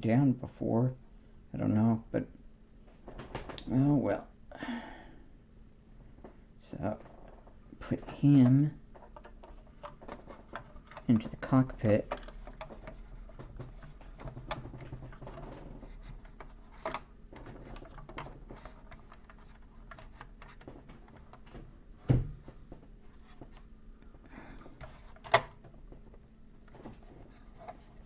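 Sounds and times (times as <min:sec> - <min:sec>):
plastic toy clicks and rubbing: 0:08.4 - 0:21.5.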